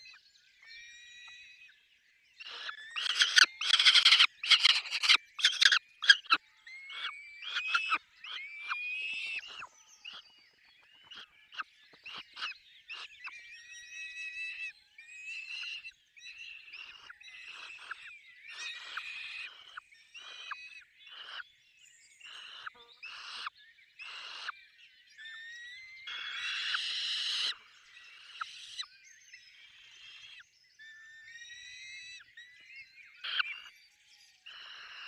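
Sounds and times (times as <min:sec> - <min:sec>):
thin rising falcon calls: 0:02.4 - 0:09.7, 0:26.1 - 0:27.6.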